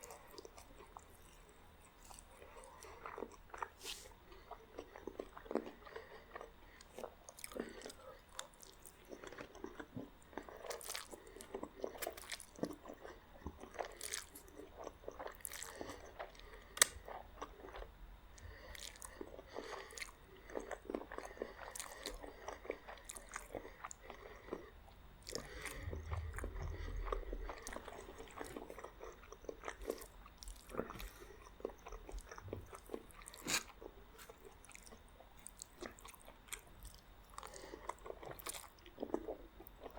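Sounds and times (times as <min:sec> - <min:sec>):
close chewing and biting: 0:00.0 - 0:39.9
low rumble: 0:25.1 - 0:28.8.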